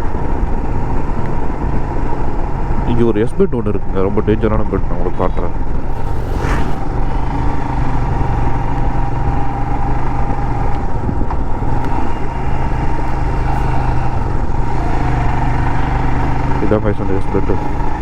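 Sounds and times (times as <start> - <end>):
road and wind noise: 0.0 - 18.0
motorcycle engine cruising: 3.8 - 18.0.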